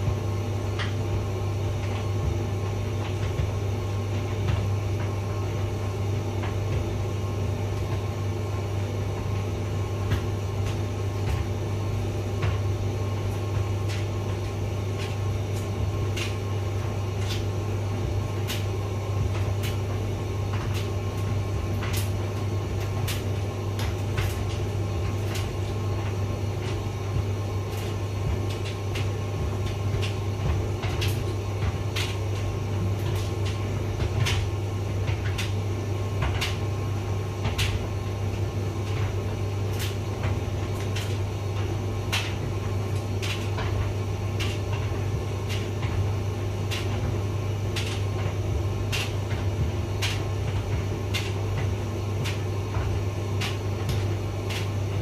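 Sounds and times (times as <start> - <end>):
tumble dryer humming: 0.0 - 55.0
load clicking in dryer drum: 27.6 - 36.8, 37.4 - 55.0.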